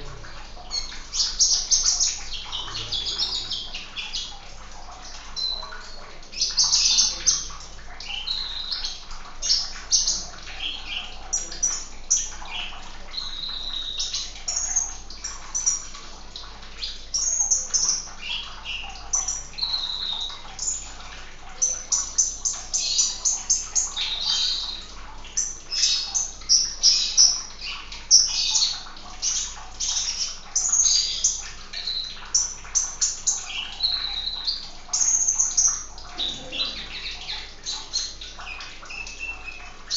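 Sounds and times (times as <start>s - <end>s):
sunbird chirping and trilling: 16.8s - 20.8s, 21.6s - 39.7s.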